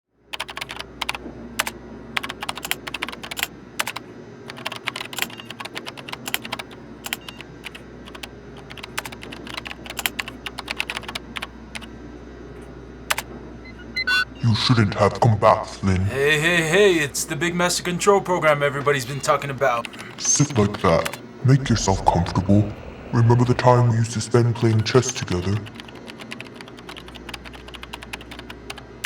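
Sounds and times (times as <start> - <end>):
typing on a computer keyboard: 0.3 - 11.9, 19.2 - 21.2, 24.6 - 29.0
low steady hum: 0.3 - 29.0.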